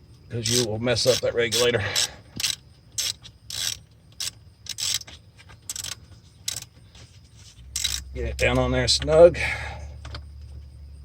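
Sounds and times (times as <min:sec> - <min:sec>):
socket ratchet clicking: 0:00.4 - 0:06.7, 0:07.7 - 0:08.1.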